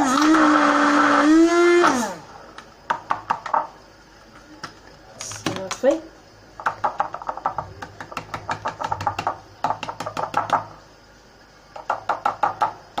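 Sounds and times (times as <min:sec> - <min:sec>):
rapid sharp taps: 0:06.6 - 0:10.8, 0:11.7 - 0:13.0.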